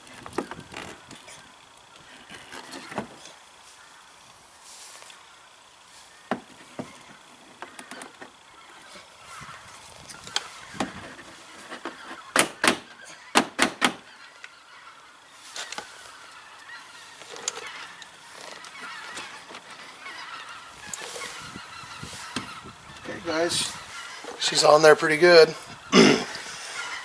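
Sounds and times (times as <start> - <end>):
geese honking: 0.0 - 27.0.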